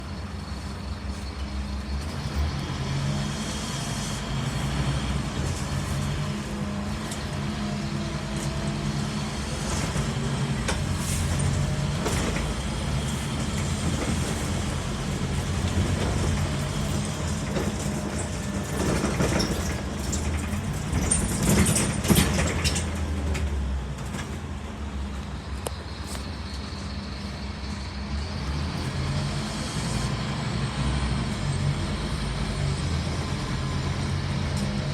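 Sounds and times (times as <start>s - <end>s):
diesel bus engine running: 0.0s - 34.9s
rattling and knocking: 9.8s - 23.5s.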